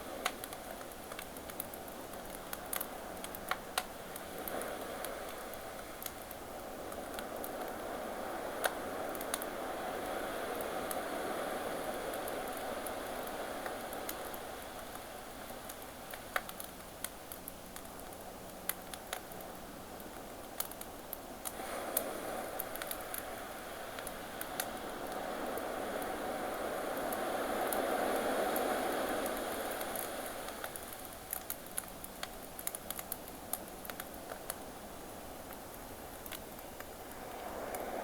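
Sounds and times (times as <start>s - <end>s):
campfire crackling and popping: 0.1s - 7.9s, 8.6s - 11.0s, 11.8s - 37.9s
ocean waves: 21.5s - 31.0s, 36.9s - 38.0s.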